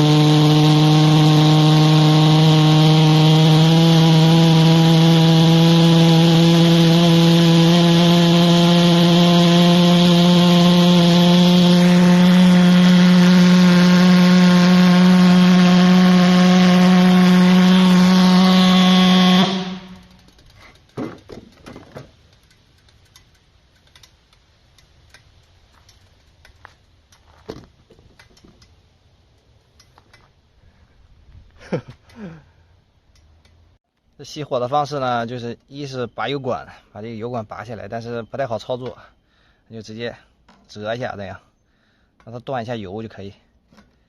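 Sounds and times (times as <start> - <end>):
pulse jet engine buzzing: 0.0 - 21.0
handling clicks and knocks: 20.2 - 28.8.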